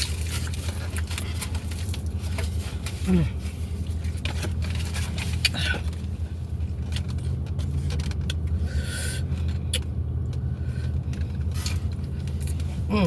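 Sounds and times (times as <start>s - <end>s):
person chewing food: 0.0s - 3.0s.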